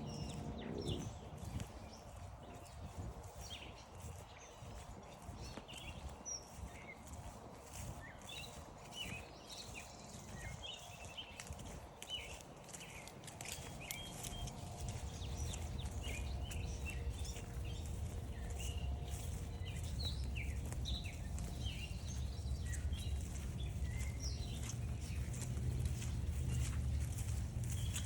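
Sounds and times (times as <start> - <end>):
steady low rumble: 0.0 - 2.0, 13.5 - 28.0
footsteps on a trail: 0.0 - 28.0
small birds chirping: 0.0 - 28.0.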